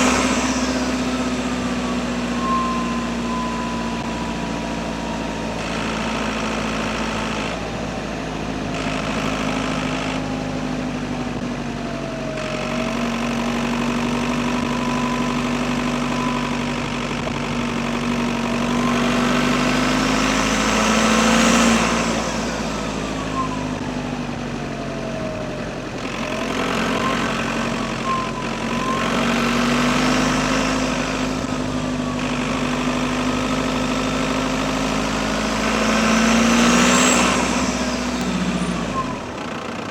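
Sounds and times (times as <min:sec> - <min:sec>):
turbo whistle: 0:00.0 - 0:06.2, 0:12.1 - 0:24.2, 0:26.0 - 0:39.6
diesel engine running: 0:00.0 - 0:39.9.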